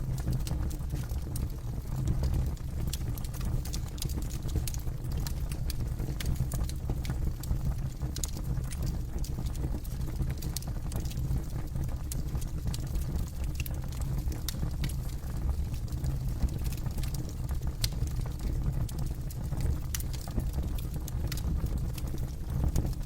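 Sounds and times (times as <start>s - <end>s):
fire low rumble: 0.0s - 23.0s
campfire crackling and popping: 0.1s - 23.0s.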